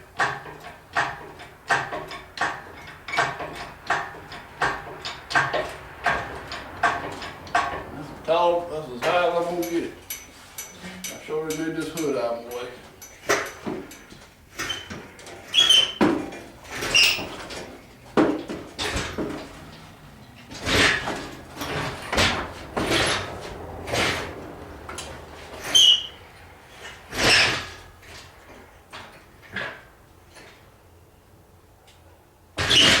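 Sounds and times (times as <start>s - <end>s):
metal clanks and knocks: 0.0s - 30.6s
short high squeaks: 14.5s - 16.0s, 16.6s - 17.7s, 25.6s - 27.9s, 32.6s - 33.0s.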